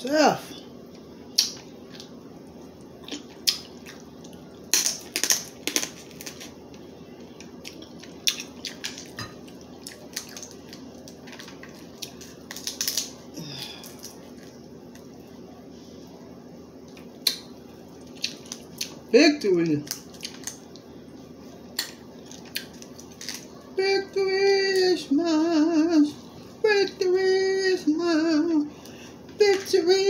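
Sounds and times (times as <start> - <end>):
low steady hum: 0.0 - 30.0
crab shells cracking: 4.7 - 6.6, 7.4 - 13.2, 19.8 - 20.6, 21.8 - 23.5.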